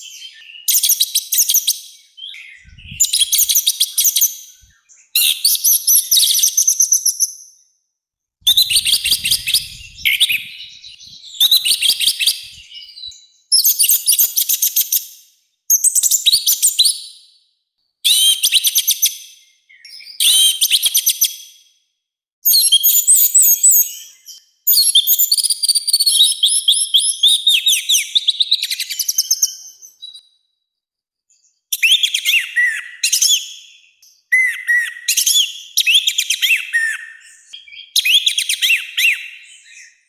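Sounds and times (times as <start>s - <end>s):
thrush singing: 8.5s - 13.0s.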